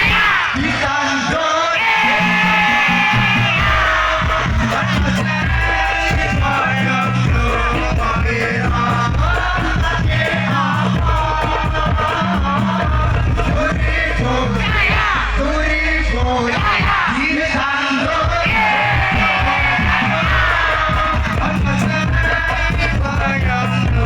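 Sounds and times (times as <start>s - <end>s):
devotional singing: 0.0s - 24.0s
low bass notes: 2.0s - 17.2s, 18.4s - 24.0s.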